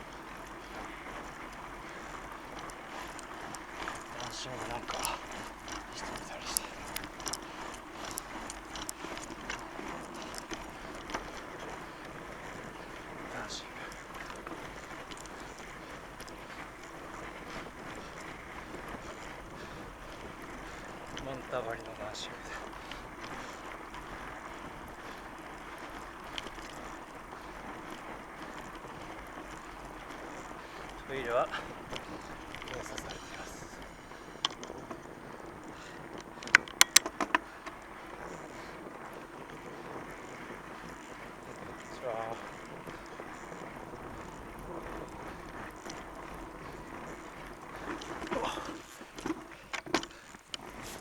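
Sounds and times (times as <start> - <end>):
bike tyres rolling over snow: 0.0 - 51.0
click: 36.4 - 37.4.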